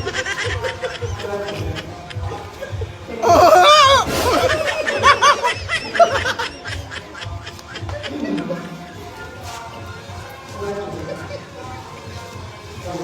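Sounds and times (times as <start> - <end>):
person laughing hard: 0.0 - 9.0
background music with low beat: 0.0 - 13.0.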